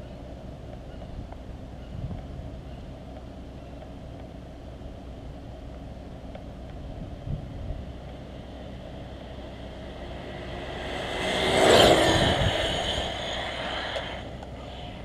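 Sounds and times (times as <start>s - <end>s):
rushing tyre noise: 4.1s - 15.0s
electric motor whine: 8.3s - 15.0s.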